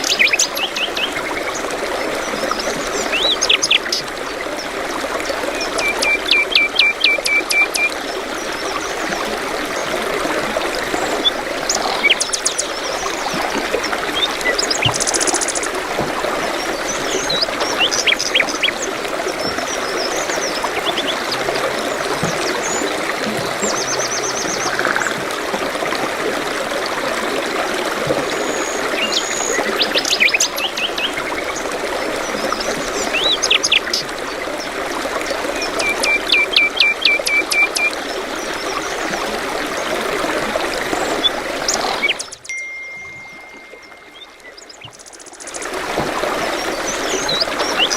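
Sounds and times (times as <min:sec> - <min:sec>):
running water: 0:00.0 - 0:47.9
birds chirping and trilling: 0:11.0 - 0:25.2, 0:41.0 - 0:45.7.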